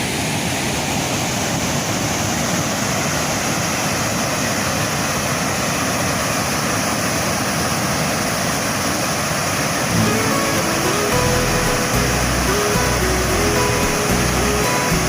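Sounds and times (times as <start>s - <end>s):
waterfall rushing: 0.0s - 15.0s
music with held notes: 9.9s - 15.0s.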